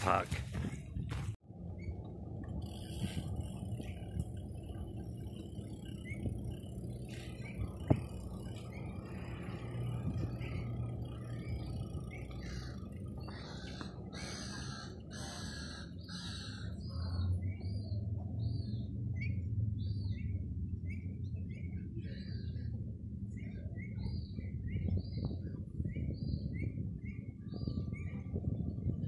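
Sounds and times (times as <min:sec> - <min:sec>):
steady low rumble: 0:00.0 - 0:29.0
harsh bird calls: 0:05.3 - 0:18.0.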